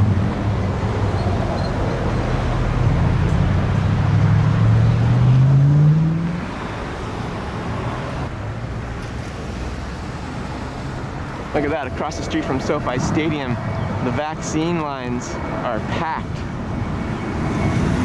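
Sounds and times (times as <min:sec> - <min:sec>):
vehicle engine accelerating: 0:00.0 - 0:08.3
traffic hum: 0:00.0 - 0:18.0.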